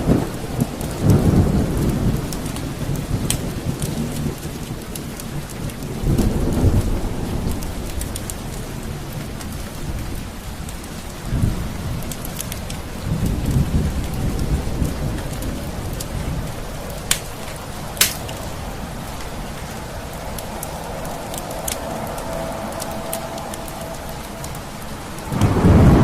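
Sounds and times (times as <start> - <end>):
steady rain: 0.0 - 26.0
thunder rolling: 13.1 - 26.0
sharp pops: 17.1 - 18.4.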